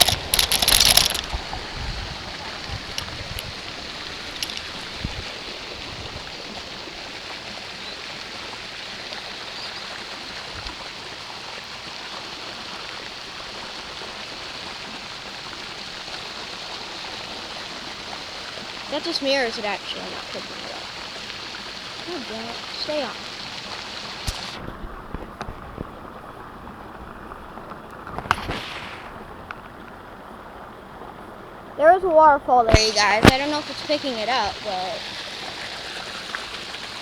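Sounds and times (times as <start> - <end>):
clicks and knocks: 0.0 - 1.5
waterfall pouring into a pond: 0.0 - 37.0.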